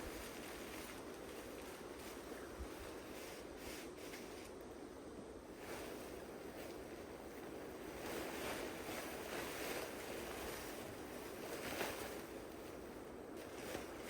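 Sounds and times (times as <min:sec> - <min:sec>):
soft rustles: 0:00.0 - 0:04.7, 0:05.5 - 0:14.0.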